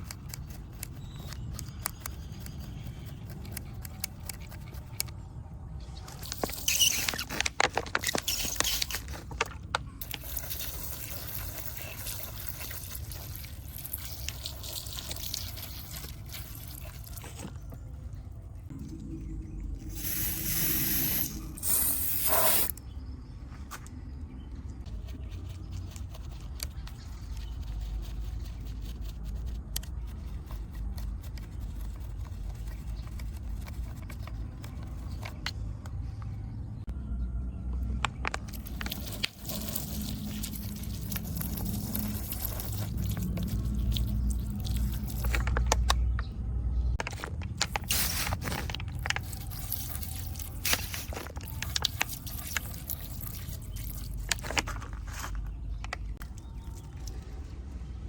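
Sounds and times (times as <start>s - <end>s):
small scrapes and clicks: 0.0s - 5.3s, 24.8s - 36.0s, 38.0s - 46.3s, 47.0s - 57.6s
low steady rumble: 15.4s - 58.0s.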